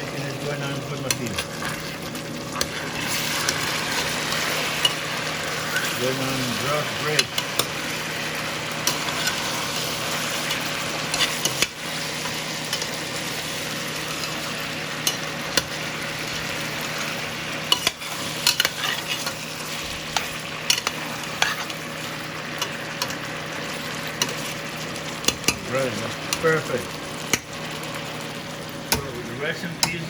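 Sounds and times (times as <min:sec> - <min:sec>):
chicken sizzling in a pot: 0:00.0 - 0:30.0
utensil clicking against pot: 0:20.1 - 0:21.0, 0:25.2 - 0:25.7.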